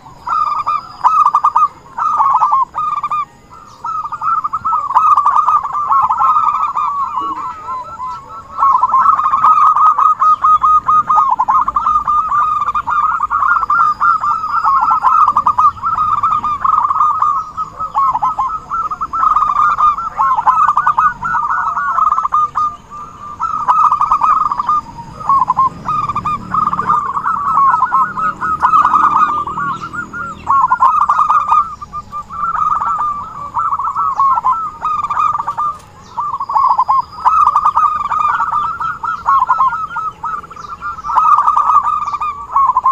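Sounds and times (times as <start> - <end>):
doves cooing in rapid trills: 0.0 - 42.9.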